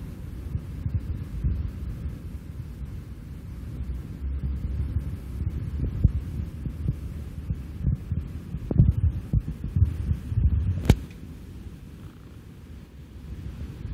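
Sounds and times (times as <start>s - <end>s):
wind buffeting microphone: 0.0s - 13.9s
sharp click: 10.8s - 11.2s.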